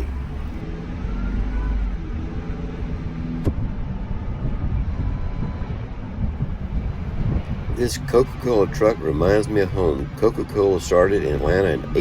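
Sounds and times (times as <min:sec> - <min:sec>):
van engine running: 0:00.0 - 0:01.0
road rumble: 0:00.0 - 0:12.0.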